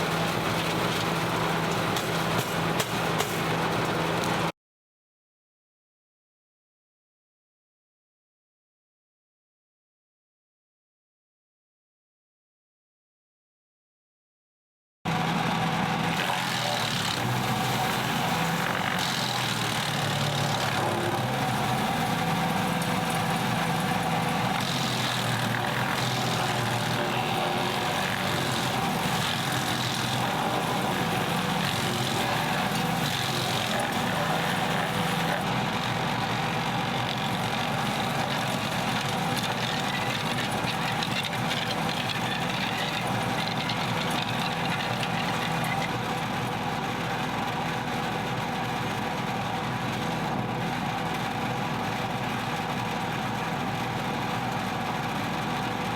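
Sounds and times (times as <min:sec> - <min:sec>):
brush grinding in chipper: 0:00.0 - 0:04.5, 0:16.1 - 0:46.6
wood chipper engine drone: 0:00.0 - 0:04.5, 0:15.1 - 0:55.9.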